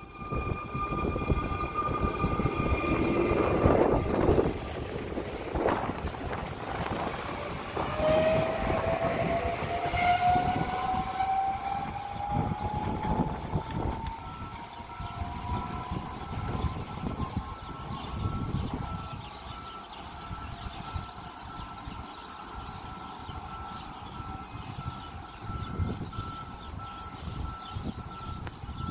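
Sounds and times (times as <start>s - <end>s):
electric traction whine rising: 0.0s - 18.2s
train wheels rumbling on rails: 0.0s - 28.9s.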